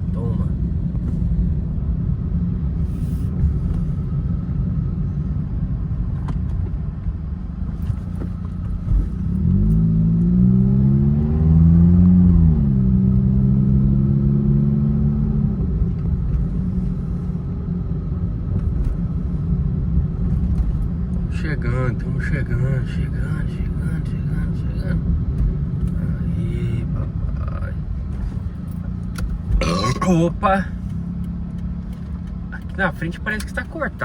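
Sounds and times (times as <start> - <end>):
car road rumble: 0.0 - 34.0
car engine revving: 7.6 - 34.0.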